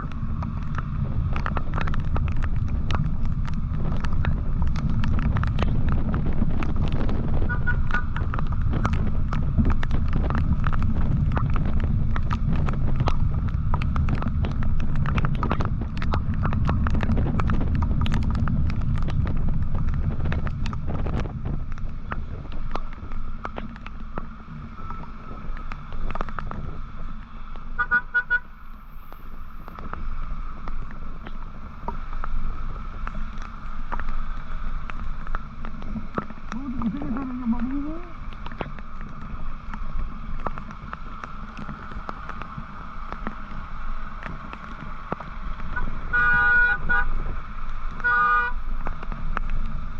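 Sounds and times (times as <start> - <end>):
wind rumble on microphone: 0.0 - 49.9
vehicle horn toots: 7.4 - 8.1, 27.8 - 28.5, 45.8 - 47.1, 48.0 - 48.6.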